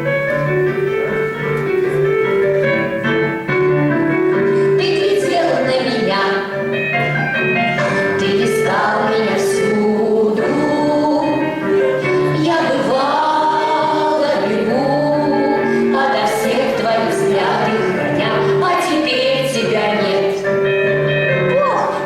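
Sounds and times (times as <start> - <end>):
instrumental accompaniment: 0.0 - 22.0
choir singing: 7.8 - 20.5.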